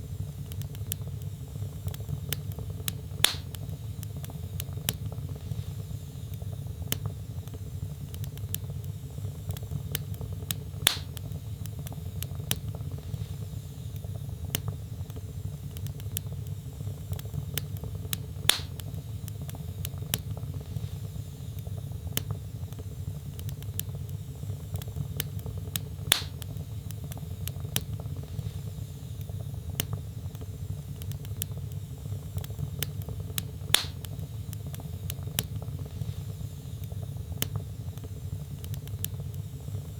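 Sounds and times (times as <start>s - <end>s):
wood fire crackling: 0.0s - 39.9s
loud fire pops: 1.8s - 5.8s, 9.4s - 13.5s, 15.8s - 21.0s, 22.1s - 39.4s.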